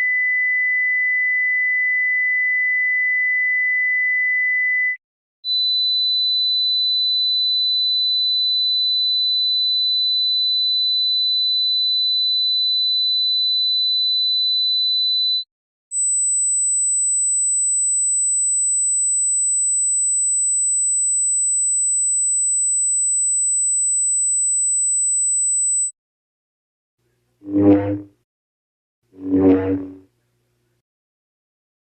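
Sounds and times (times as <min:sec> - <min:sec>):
high sine test tone: 0:16.0 - 0:25.9, 0:27.4 - 0:28.2, 0:29.2 - 0:30.1
shrill higher sine tone: 0:27.4 - 0:28.1, 0:29.2 - 0:30.0.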